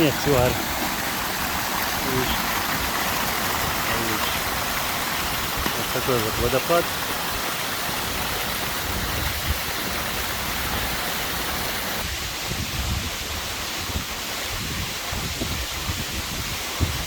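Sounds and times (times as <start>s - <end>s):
rush of falling water: 0.0s - 17.0s
wind rumble on microphone: 8.1s - 17.0s.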